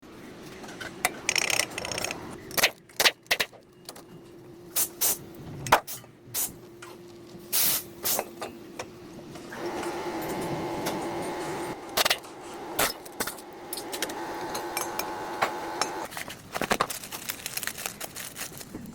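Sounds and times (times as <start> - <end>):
spray hiss: 7.5 - 8.2.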